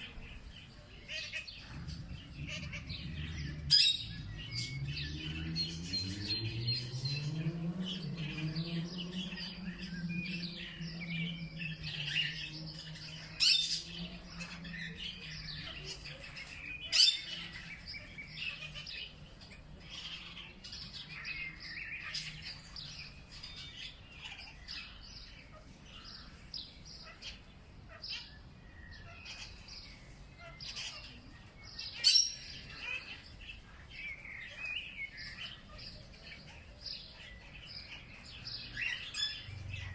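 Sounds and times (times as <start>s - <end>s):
low droning hum: 0.0s - 19.3s
small birds chirping: 0.0s - 39.9s.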